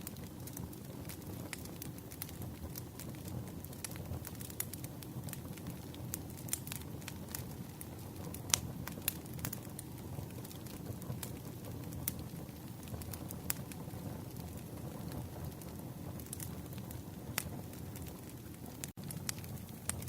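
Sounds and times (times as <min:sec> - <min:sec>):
burning wood crackling: 0:00.0 - 0:20.0
campfire flames rumbling: 0:00.0 - 0:20.0.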